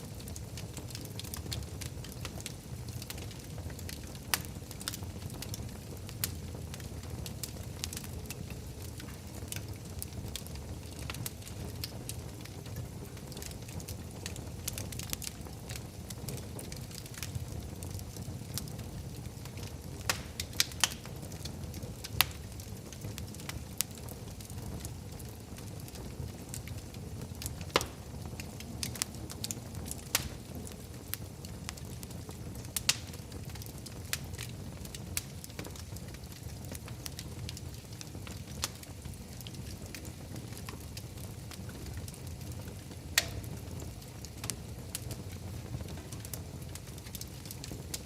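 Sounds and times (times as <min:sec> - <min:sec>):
fire crackles and pops: 0:00.0 - 0:48.0
low rumble of flames: 0:00.0 - 0:48.0.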